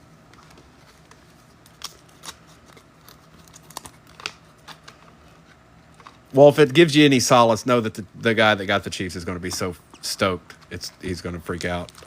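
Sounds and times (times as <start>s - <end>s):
trading cards being flipped: 0.3s - 6.2s.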